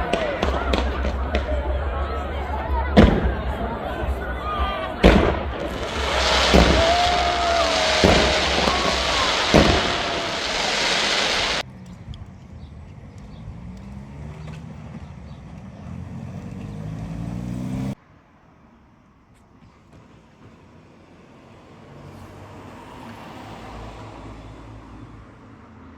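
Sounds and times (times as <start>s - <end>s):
sharp bangs: 0.0s - 11.6s
whistling glides: 0.0s - 11.6s
loud crackling: 0.0s - 11.7s
vehicle engine revving up: 5.6s - 11.6s, 13.2s - 15.0s, 15.8s - 18.0s.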